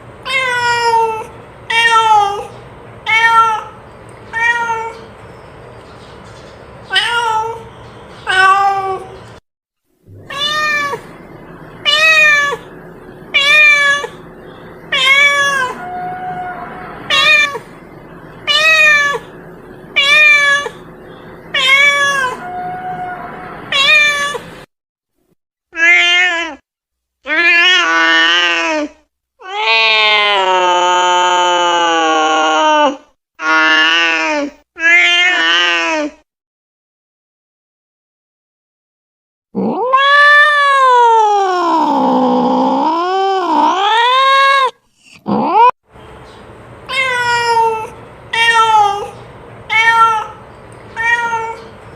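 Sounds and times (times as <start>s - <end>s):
cat meowing: 0.3s - 5.1s, 6.9s - 9.2s, 10.1s - 11.2s, 11.8s - 12.7s, 13.3s - 14.2s, 14.9s - 17.7s, 18.4s - 19.4s, 20.0s - 20.9s, 21.5s - 24.5s, 25.8s - 26.6s, 27.3s - 36.1s, 39.6s - 45.7s, 46.9s - 51.7s
faint steady hum: 10.2s - 24.6s.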